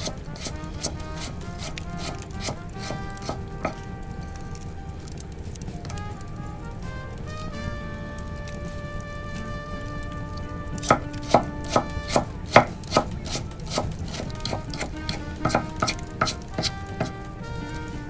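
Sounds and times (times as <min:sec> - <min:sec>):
sharp irregular knocks: 0:00.0 - 0:17.5
background music with held tones: 0:00.0 - 0:18.0.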